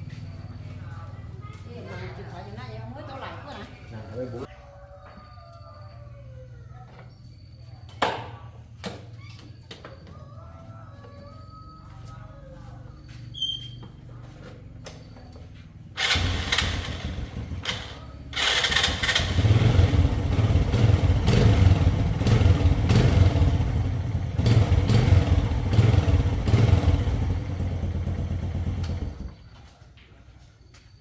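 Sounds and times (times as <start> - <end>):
motorcycle engine starting and revving: 14.7 - 29.6.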